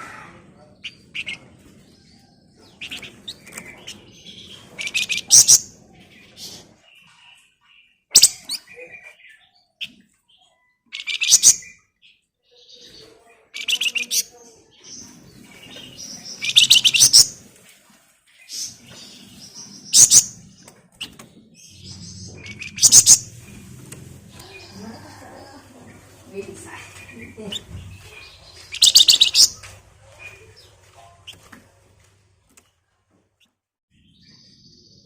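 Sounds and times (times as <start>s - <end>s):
songbird buzzy trills: 18.7s - 29.6s.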